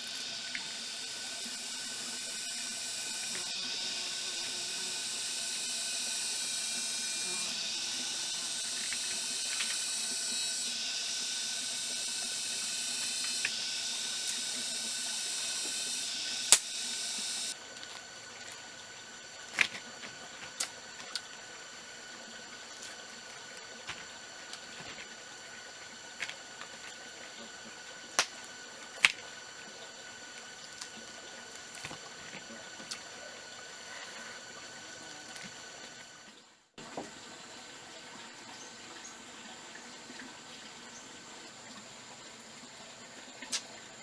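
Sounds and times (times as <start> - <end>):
steady hiss: 0.0 - 36.0
sharp clicks: 11.6 - 17.5.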